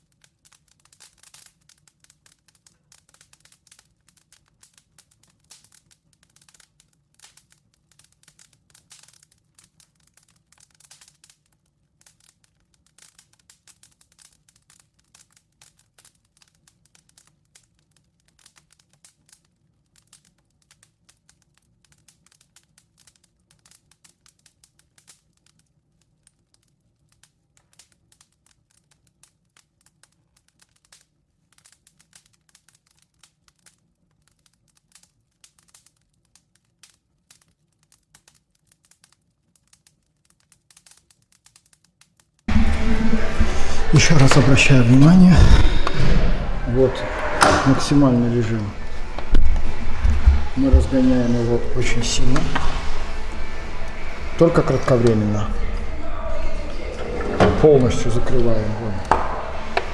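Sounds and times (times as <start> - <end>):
firewood crackling: 42.5 - 59.9.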